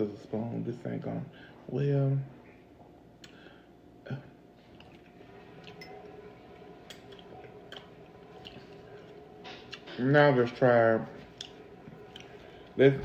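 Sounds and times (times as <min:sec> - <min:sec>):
faint steady hum: 0:00.0 - 0:13.0
close-up chewing: 0:06.8 - 0:09.9, 0:11.3 - 0:12.8
wet mouth clicks: 0:06.9 - 0:08.7.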